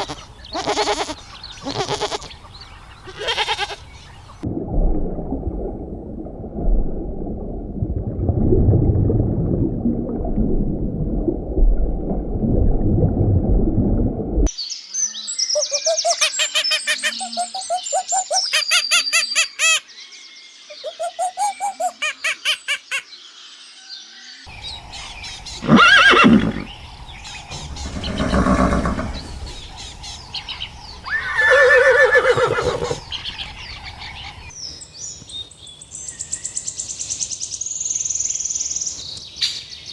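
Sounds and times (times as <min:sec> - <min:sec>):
horses neighing: 0:00.0 - 0:02.4, 0:03.0 - 0:04.0, 0:24.6 - 0:34.5
high bird chirping: 0:00.0 - 0:04.4, 0:15.5 - 0:19.8, 0:20.7 - 0:23.1, 0:24.5 - 0:34.6.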